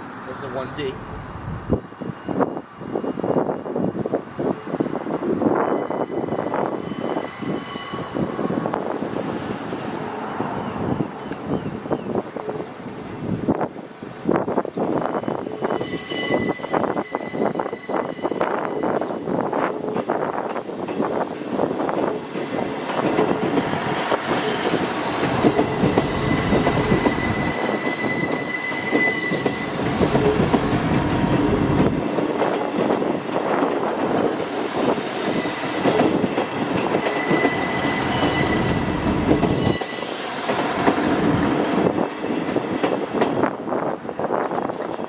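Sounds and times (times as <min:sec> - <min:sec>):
train wheel and rail noise: 0:00.0 - 0:45.0
high wheel squeal: 0:05.5 - 0:09.1, 0:15.0 - 0:19.3, 0:24.2 - 0:32.0, 0:34.4 - 0:42.0.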